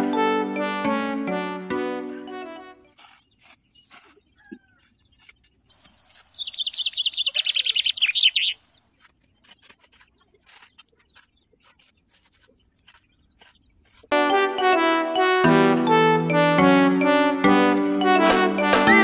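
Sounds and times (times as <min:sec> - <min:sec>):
putty knife scraping sand: 0:02.2 - 0:06.8, 0:08.9 - 0:14.2
songbird trilling: 0:03.3 - 0:08.8.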